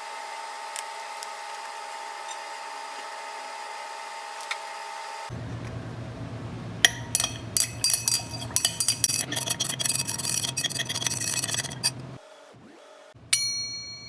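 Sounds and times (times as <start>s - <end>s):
spoon clinking against glass: 6.9s - 11.9s.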